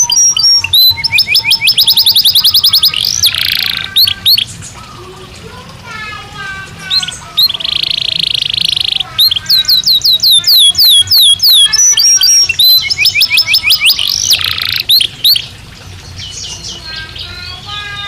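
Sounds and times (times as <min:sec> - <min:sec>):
canary singing: 0:00.0 - 0:18.0.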